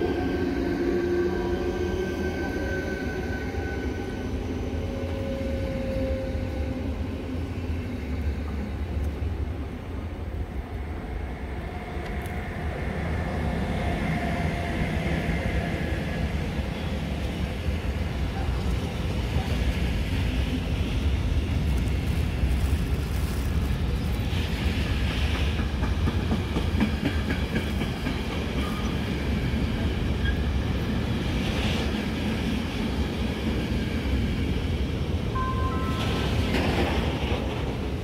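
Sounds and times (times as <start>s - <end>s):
freight train rolling past: 0.0s - 38.0s
wheels clickety-clack: 24.9s - 29.0s.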